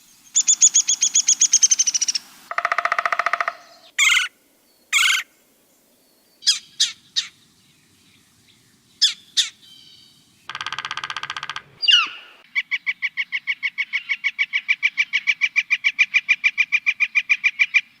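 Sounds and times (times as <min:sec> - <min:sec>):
rapidly repeated bird notes: 0:00.0 - 0:04.3, 0:10.4 - 0:12.4
bird calls: 0:00.0 - 0:05.4, 0:06.1 - 0:18.0
buzzy bird rattle: 0:10.5 - 0:11.8.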